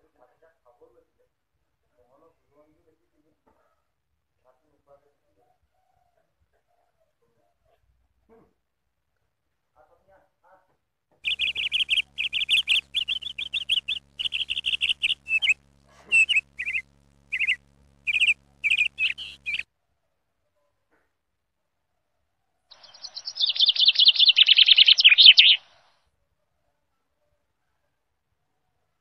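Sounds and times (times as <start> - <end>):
harsh rapid bird chatter: 11.2 - 19.6, 22.7 - 25.7
songbirds chirping: 11.2 - 19.6, 22.7 - 25.9.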